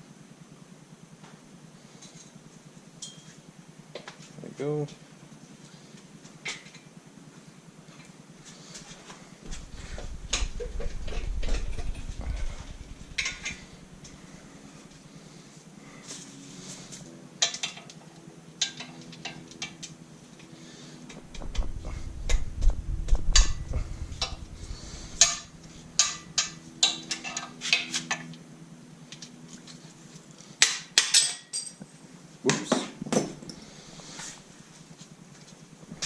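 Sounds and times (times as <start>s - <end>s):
low rumble: 9.4s - 15.0s, 21.1s - 26.4s.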